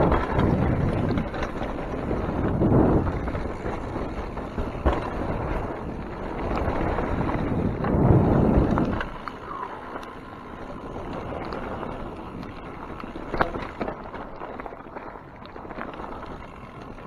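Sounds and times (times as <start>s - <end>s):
wind rushing over microphone: 0.0s - 12.6s.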